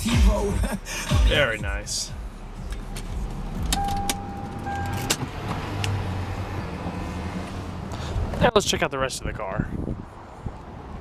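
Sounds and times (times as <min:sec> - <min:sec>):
car engine idling: 0:00.0 - 0:08.4
steady beep tone: 0:02.7 - 0:05.1.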